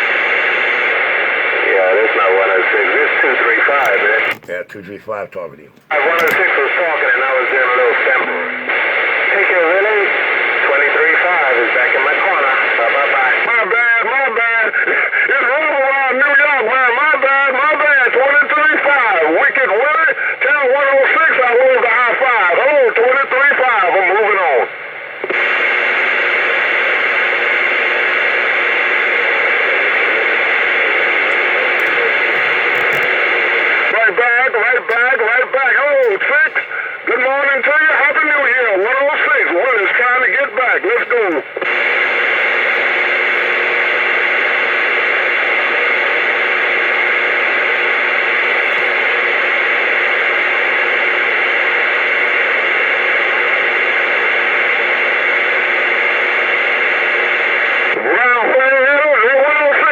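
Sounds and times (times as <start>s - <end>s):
radio static hiss: 0.0s - 59.9s.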